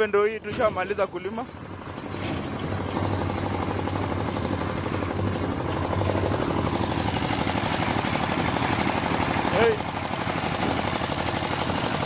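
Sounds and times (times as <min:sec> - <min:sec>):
walking tractor engine chugging: 0:00.0 - 0:12.0.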